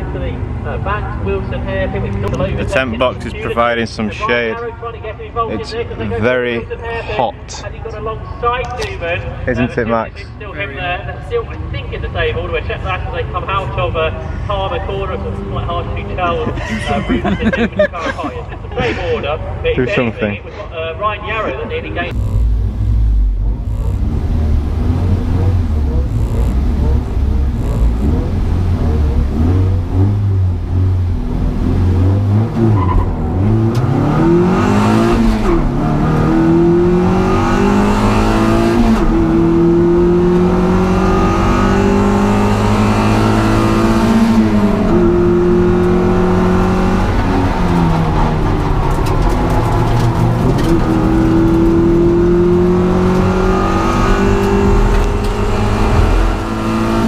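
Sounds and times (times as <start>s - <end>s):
race car engine revving: 22.0s - 57.0s.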